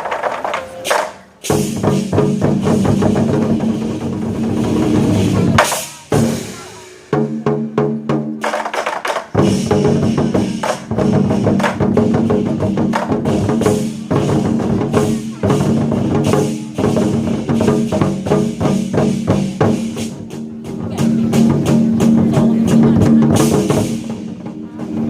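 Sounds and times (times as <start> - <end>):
war drums beating fast: 0.0 - 25.0.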